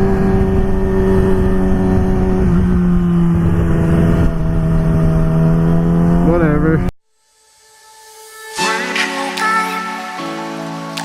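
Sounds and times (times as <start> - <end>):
motorcycle engine cruising: 0.0 - 6.9
wind rumble on microphone: 0.0 - 6.9.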